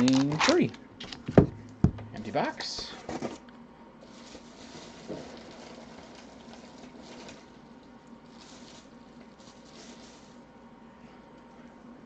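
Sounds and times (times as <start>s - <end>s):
low electrical hum: 0.0s - 12.0s
cardboard packaging rustling: 4.0s - 7.4s, 8.3s - 10.4s.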